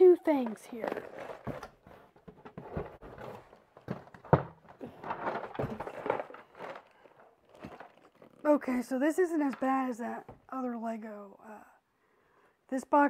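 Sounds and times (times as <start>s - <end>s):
cardboard boxes knocking: 1.4s - 6.7s.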